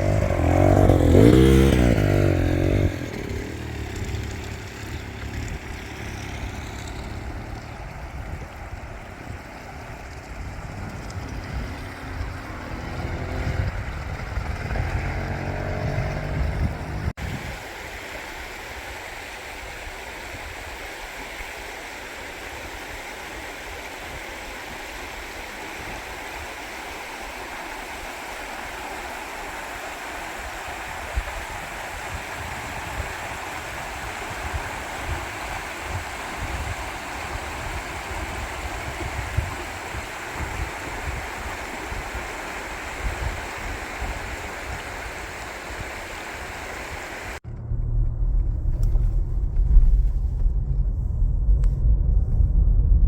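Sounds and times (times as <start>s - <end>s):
vehicle passing: 0.0s - 8.2s, 10.7s - 17.1s
rushing floodwater: 0.0s - 47.4s.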